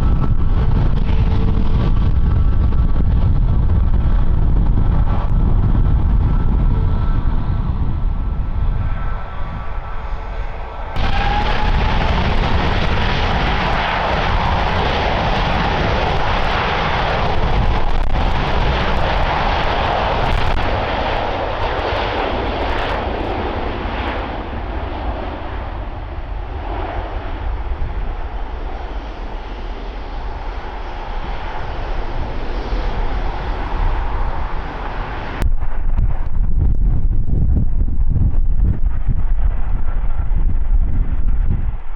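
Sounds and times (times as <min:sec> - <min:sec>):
jet engine noise: 0:00.0 - 0:41.9
wind noise on microphone: 0:00.0 - 0:41.9.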